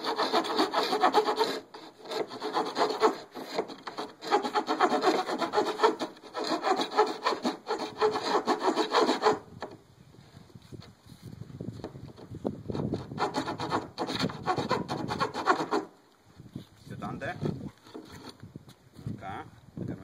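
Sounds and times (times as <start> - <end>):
hand saw cutting plywood: 0.0 - 9.5, 12.7 - 15.9, 17.3 - 18.4.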